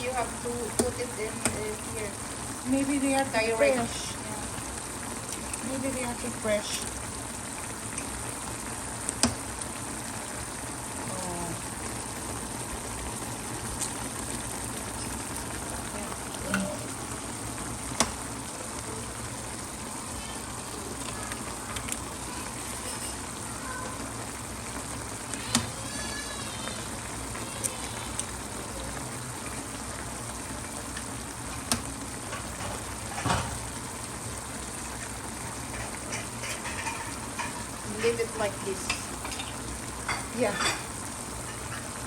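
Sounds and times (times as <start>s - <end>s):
pot simmering and bubbling: 0.0s - 42.0s.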